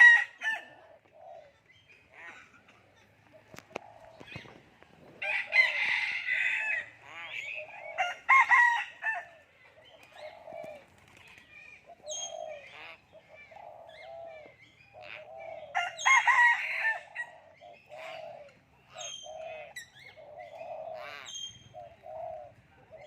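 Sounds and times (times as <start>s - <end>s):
myna bird calling: 6.7s - 16.3s, 16.9s - 23.0s.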